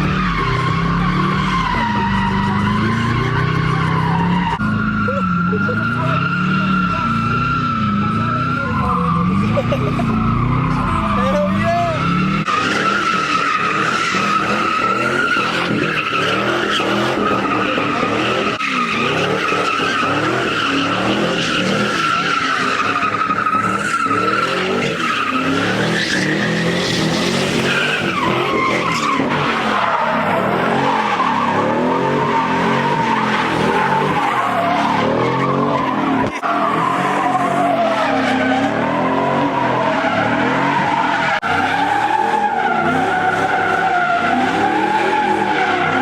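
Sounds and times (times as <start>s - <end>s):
car engine revving: 0.0s - 46.0s
tires squealing: 0.0s - 46.0s.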